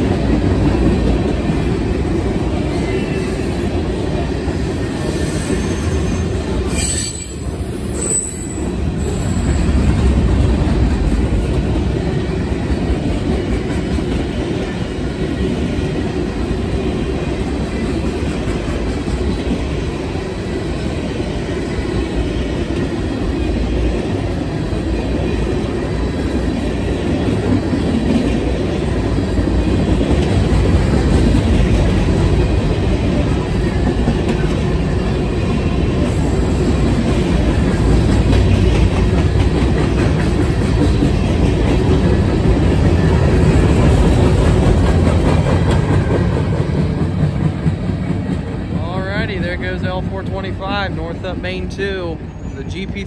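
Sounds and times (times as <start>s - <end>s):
freight train rumbling past: 0.0s - 53.0s
high-pitched wheel squeal: 5.2s - 9.7s.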